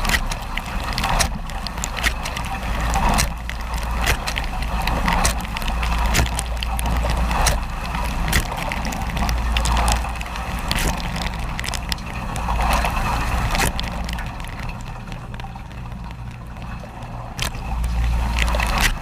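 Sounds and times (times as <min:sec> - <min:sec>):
sharp clicks: 0:00.0 - 0:12.2
water spraying and sloshing: 0:00.0 - 0:19.0.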